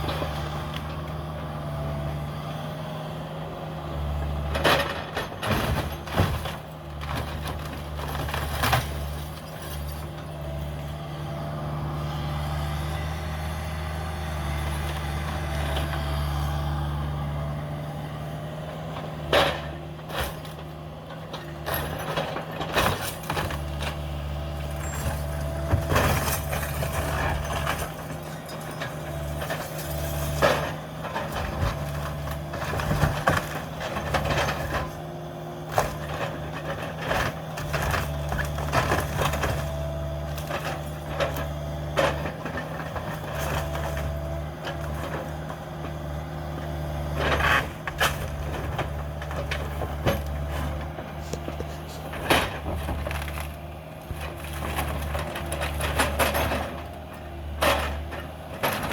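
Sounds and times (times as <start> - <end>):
excavator diesel engine under load: 0.0 - 58.9
wood cracking and splintering: 35.7 - 45.1, 46.7 - 57.0.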